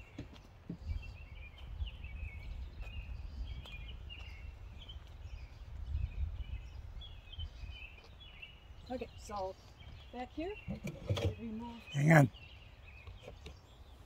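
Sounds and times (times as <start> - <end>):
small birds chirping and singing: 0.0 - 14.0
low microphone rumble: 0.8 - 8.8.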